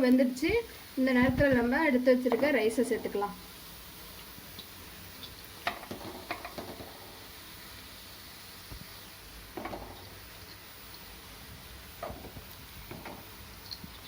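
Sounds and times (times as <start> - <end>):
vegetables sizzling in oil: 0.0 - 14.0
spoon clattering against pan: 5.6 - 7.1, 9.6 - 10.1, 12.0 - 13.3.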